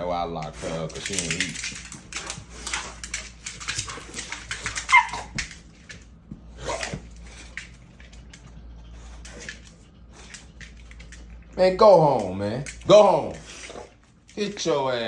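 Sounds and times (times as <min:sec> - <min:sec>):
dogs scuffling: 0:00.3 - 0:15.0
dog yelping: 0:04.6 - 0:05.5.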